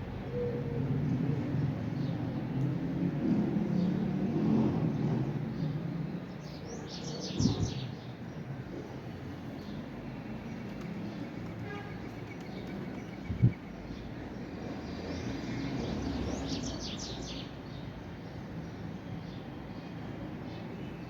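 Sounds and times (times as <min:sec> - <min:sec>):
small birds chirping: 0:04.8 - 0:21.0.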